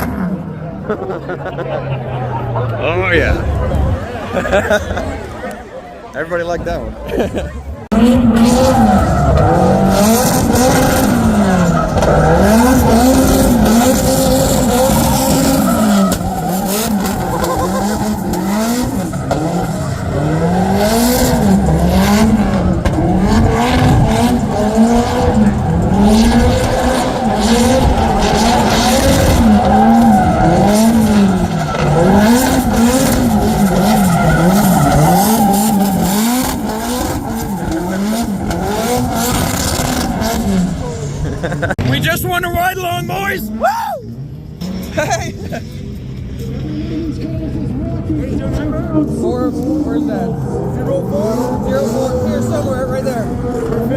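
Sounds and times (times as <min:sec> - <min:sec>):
car engine revving hard: 0:07.8 - 0:42.7, 0:44.3 - 0:53.9
tyres squealing and skidding: 0:07.9 - 0:45.7.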